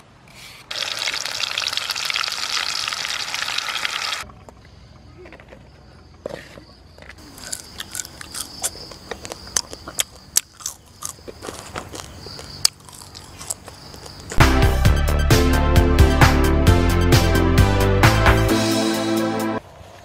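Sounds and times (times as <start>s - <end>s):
crunchy food chewing: 7.2s - 14.4s
fingers picking through fried food: 7.2s - 14.4s.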